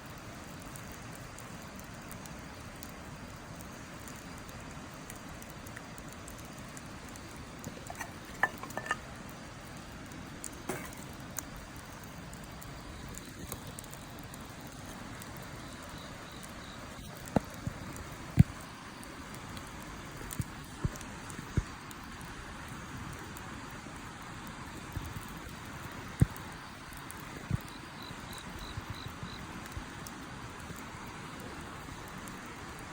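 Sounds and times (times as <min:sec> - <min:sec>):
campfire crackling and popping: 0:00.0 - 0:32.9.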